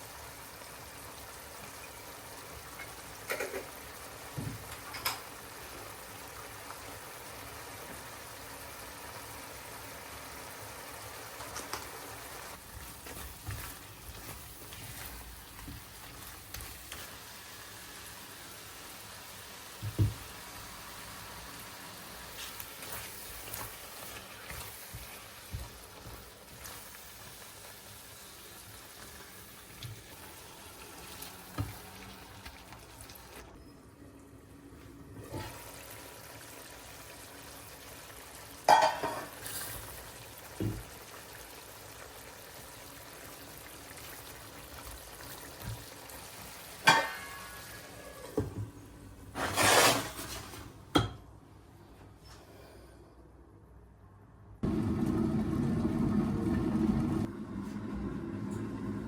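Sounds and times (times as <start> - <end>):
running water: 28.6 - 33.5.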